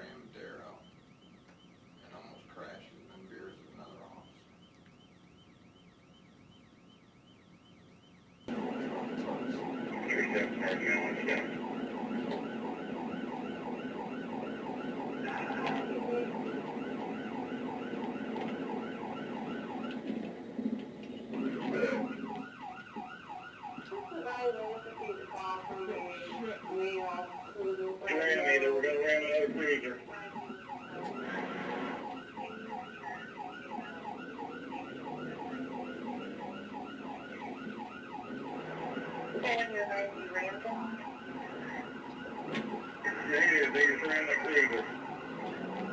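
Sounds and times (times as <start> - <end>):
police siren yelping: 0.0 - 45.9
engine and road noise: 8.5 - 23.8, 30.5 - 45.9.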